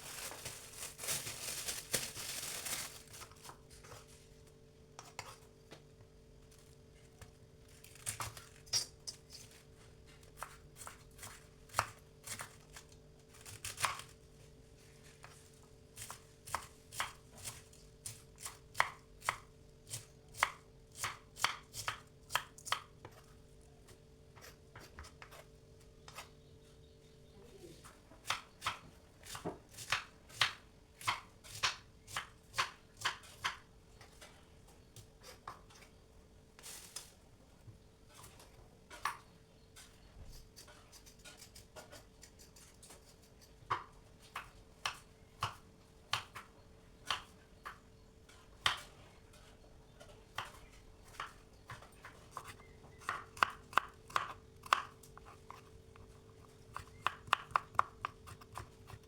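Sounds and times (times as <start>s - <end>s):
knife chopping on cutting board: 51.2s - 59.0s.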